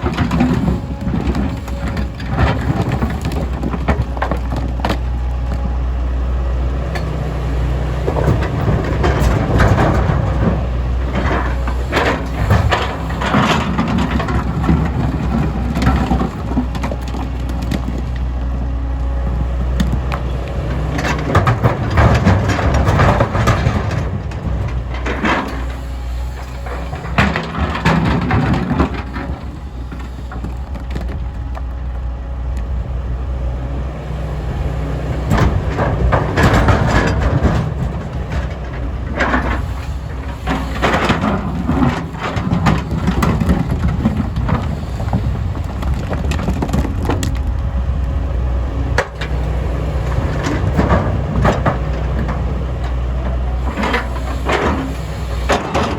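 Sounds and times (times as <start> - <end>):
excavator diesel engine running: 0.0 - 55.9
rock crashing and scraping: 35.2 - 48.0.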